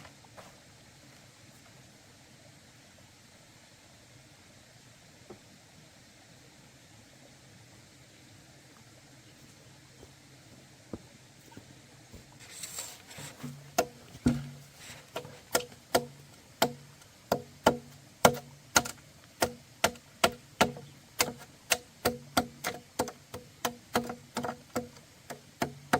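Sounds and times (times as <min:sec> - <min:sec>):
hand tool striking wood: 0:13.2 - 0:25.9.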